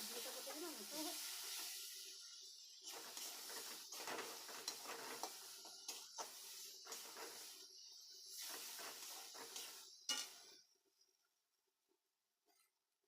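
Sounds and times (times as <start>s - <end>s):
curry sizzling in a pan: 0.0s - 10.8s
spoon scraping and knocking pan: 2.9s - 10.6s.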